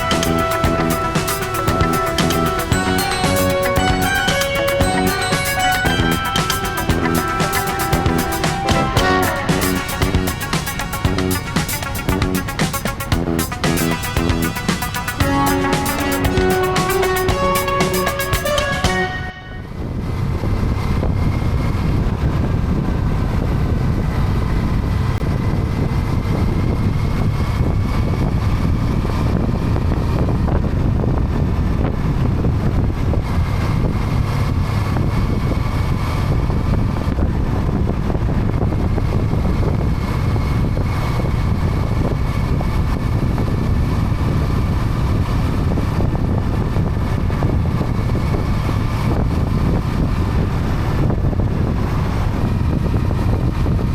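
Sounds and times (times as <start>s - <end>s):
wind rushing over microphone: 19.6s - 53.9s.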